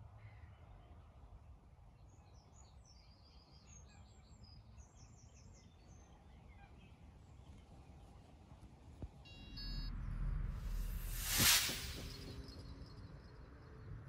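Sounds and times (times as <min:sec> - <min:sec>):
low steady rumble: 0:09.3 - 0:14.0.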